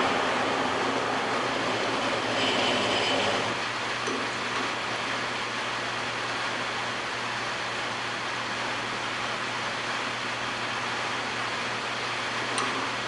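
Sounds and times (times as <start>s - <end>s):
metal lathe running: 0.0s - 8.2s.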